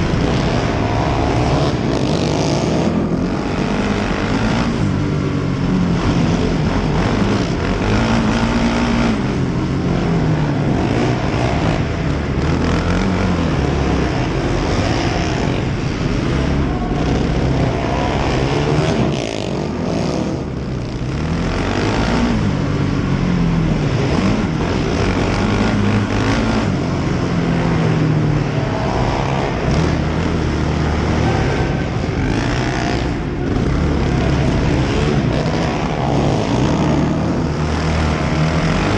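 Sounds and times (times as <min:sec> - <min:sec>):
quad engines revving: 0:00.0 - 0:38.9.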